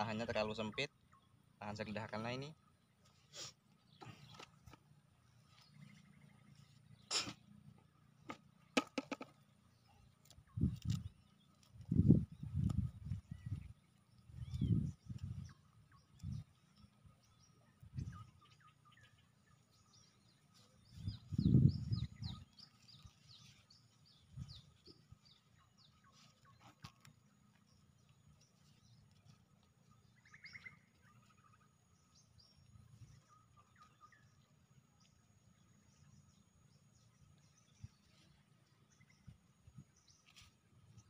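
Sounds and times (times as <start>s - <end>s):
small birds chirping: 0.0s - 41.0s.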